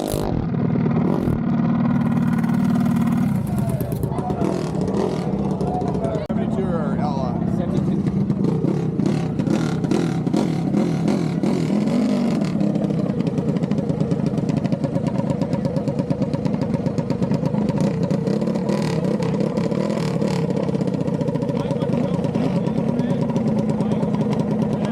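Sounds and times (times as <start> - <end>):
fast ticking clatter: 0.0 - 6.3, 12.5 - 24.9
vehicle engines running: 0.0 - 24.9.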